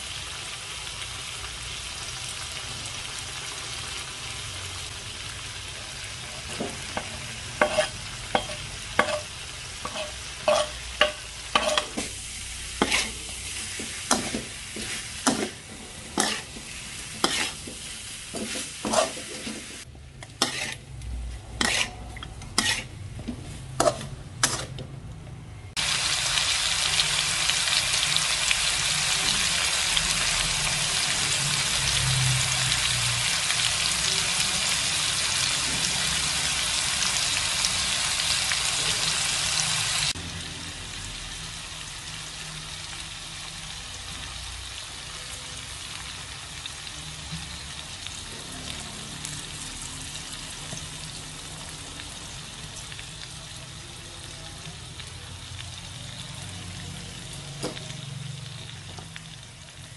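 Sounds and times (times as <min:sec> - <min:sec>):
pork sizzling in a wok: 0:00.0 - 0:25.0, 0:25.7 - 0:59.9
metal spatula scraping a pan: 0:06.4 - 0:24.8.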